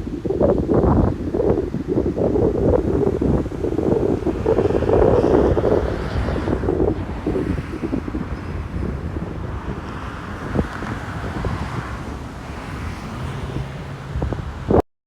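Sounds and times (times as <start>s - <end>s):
low engine hum: 0.0s - 14.8s
ocean surf: 0.0s - 14.8s
wind buffeting microphone: 0.0s - 14.8s.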